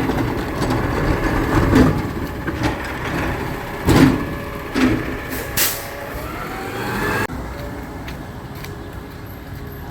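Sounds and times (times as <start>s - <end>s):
garbage truck engine whining: 0.0s - 7.3s.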